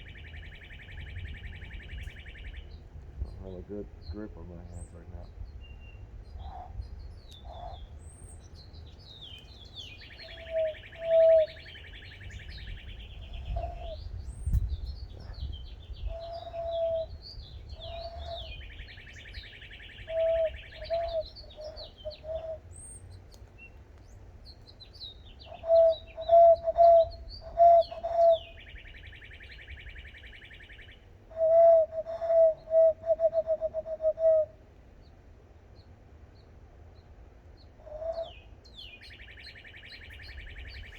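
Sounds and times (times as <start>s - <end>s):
birds chirping: 0.0s - 34.4s, 35.0s - 40.9s
hand whistling hooting notes: 16.1s - 18.6s, 20.0s - 22.6s, 25.5s - 28.6s, 31.3s - 34.5s.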